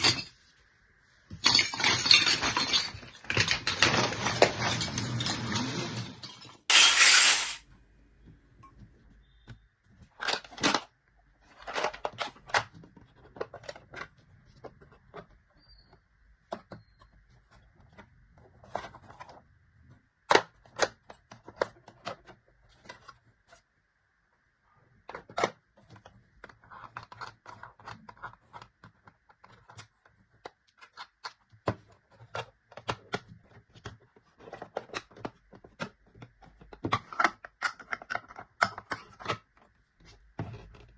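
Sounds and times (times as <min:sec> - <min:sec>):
plastic pieces clicking and tapping: 0:25.1 - 0:39.7.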